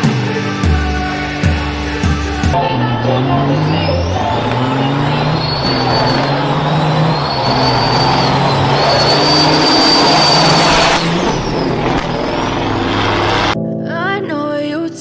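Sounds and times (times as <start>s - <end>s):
vehicle engine hum: 1.9s - 13.6s
high-pitched whine: 2.6s - 13.6s.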